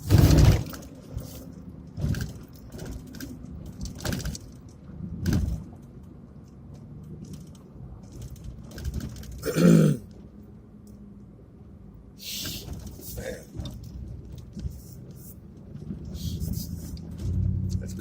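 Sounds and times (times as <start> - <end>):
knocks and rattles: 0.0 - 5.8, 7.2 - 9.5
engine and road drone: 0.0 - 18.0.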